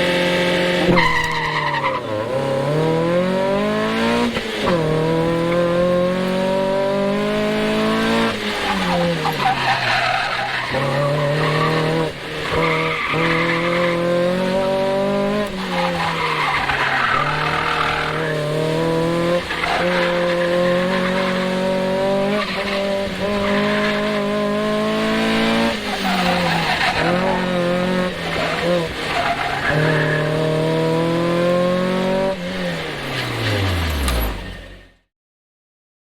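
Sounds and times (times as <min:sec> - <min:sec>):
car engine revving: 0:00.0 - 0:35.0
tyres squealing: 0:08.6 - 0:14.3, 0:25.3 - 0:30.6.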